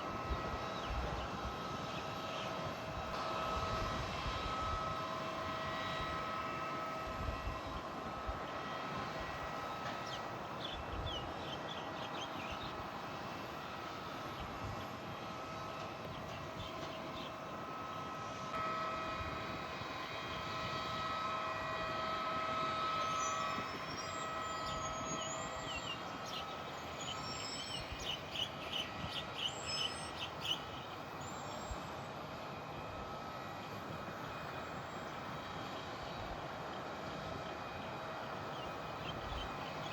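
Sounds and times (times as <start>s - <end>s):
aircraft engines whining: 0.0s - 39.9s.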